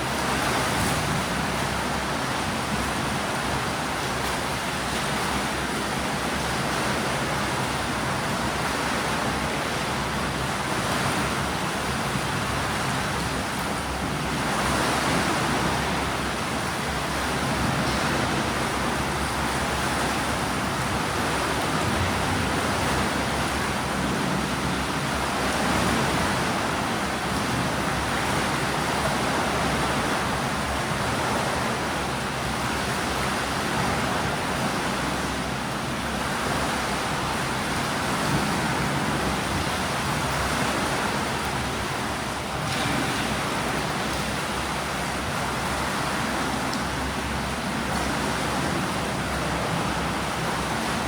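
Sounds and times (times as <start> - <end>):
pool water churned by swimmers: 0.0 - 51.0.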